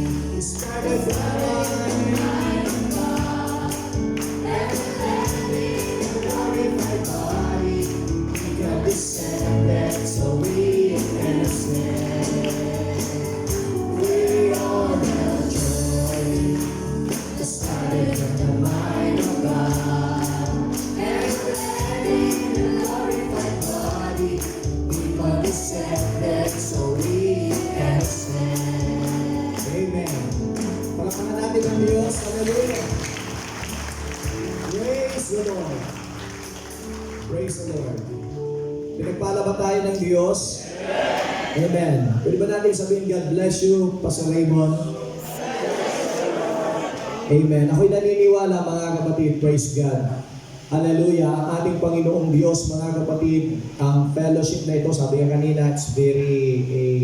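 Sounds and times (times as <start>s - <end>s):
group singing gospel song: 0.0s - 36.6s, 40.6s - 42.0s, 44.8s - 47.8s
steady percussive beat: 0.0s - 37.2s
band accompaniment: 0.0s - 39.2s.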